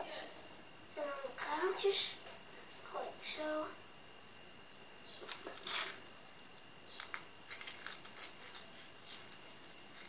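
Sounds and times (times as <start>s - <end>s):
dry bird food being scattered: 6.9s - 8.6s.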